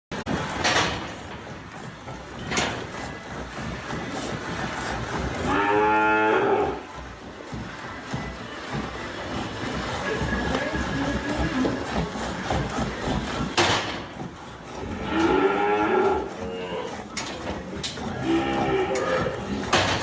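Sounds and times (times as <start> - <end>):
cow mooing: 5.4 - 6.9, 14.8 - 17.4, 18.1 - 20.0.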